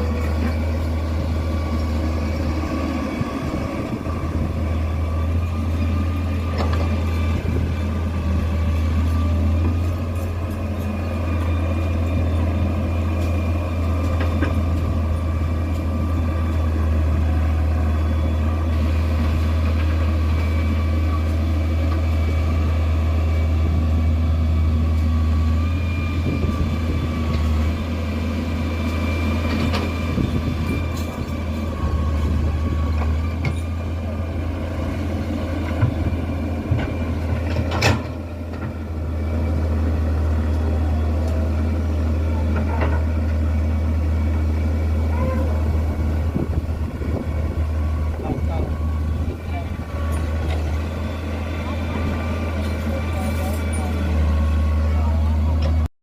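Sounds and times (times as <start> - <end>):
heavy machine engine humming: 0.0 - 55.9.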